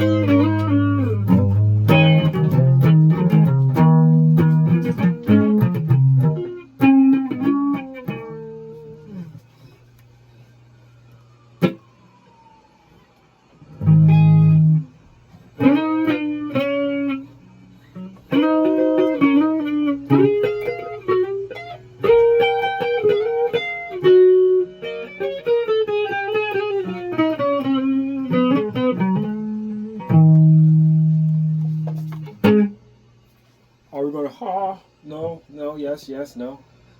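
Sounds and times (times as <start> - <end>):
electric guitar single notes: 0.0 - 9.4, 13.7 - 15.0, 15.6 - 33.0.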